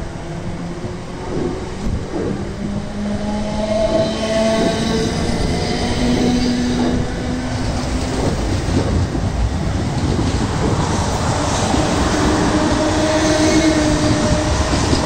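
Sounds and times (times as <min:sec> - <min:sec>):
train passing on track: 0:00.0 - 0:15.0.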